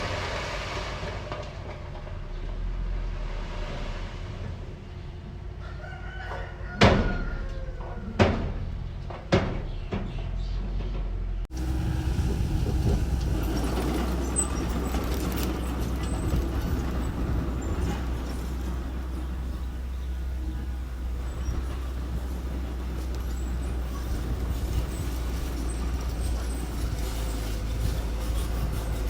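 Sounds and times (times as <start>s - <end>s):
rooster crowing: 5.6s - 8.2s
engine humming: 7.3s - 29.0s
machinery noise: 11.5s - 29.0s.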